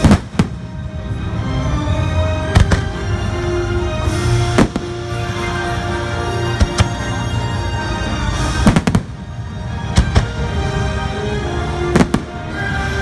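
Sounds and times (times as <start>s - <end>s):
firework bangs: 0.0s - 0.8s, 4.5s - 5.0s, 8.6s - 9.2s, 11.9s - 12.6s
orchestral music: 0.0s - 13.0s.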